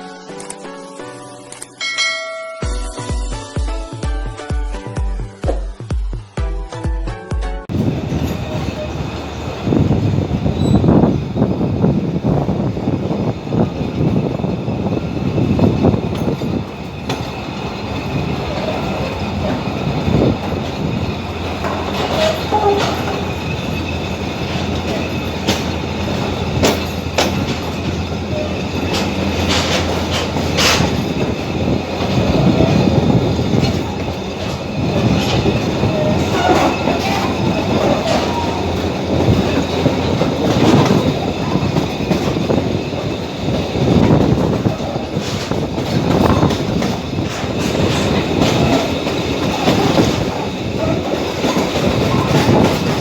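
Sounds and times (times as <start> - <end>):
train rumbling on track: 7.6 - 53.0
wheels clacking over rail joints: 7.8 - 53.0
wheel squeals: 8.1 - 11.8, 13.9 - 53.0.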